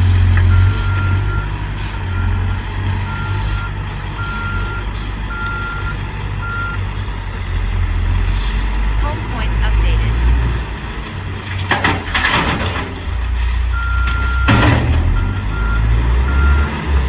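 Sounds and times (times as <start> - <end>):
diesel engine running: 0.0 - 17.0
reverse alarm beeping: 0.5 - 6.9, 9.0 - 10.2, 13.7 - 16.7.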